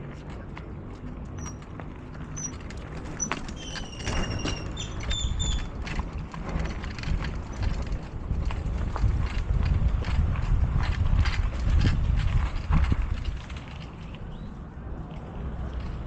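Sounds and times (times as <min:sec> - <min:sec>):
light clicks and rattles: 0:00.0 - 0:14.4
bicycle wind and rolling rumble: 0:00.0 - 0:16.0.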